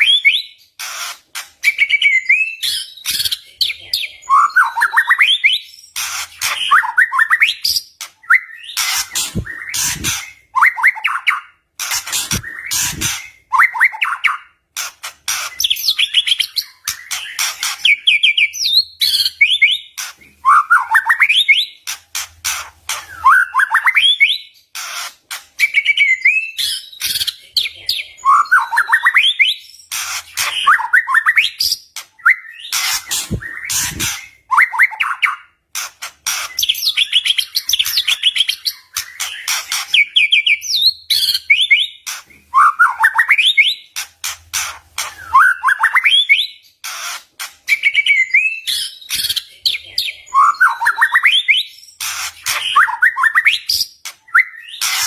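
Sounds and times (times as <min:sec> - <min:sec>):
bird singing with trills: 0:01.6 - 0:11.6, 0:12.2 - 0:14.6, 0:15.5 - 0:21.8, 0:25.6 - 0:35.5, 0:36.5 - 0:44.0, 0:47.7 - 0:55.0.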